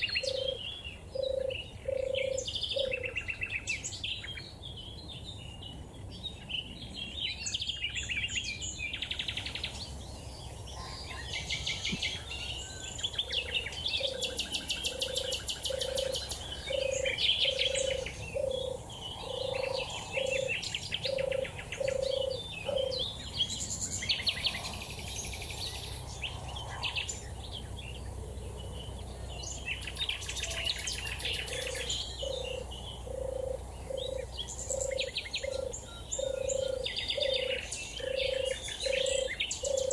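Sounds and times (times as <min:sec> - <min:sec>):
dove purring: 0:00.0 - 0:03.1, 0:13.4 - 0:23.0, 0:31.2 - 0:39.9
high-pitched songbird song: 0:00.0 - 0:39.9.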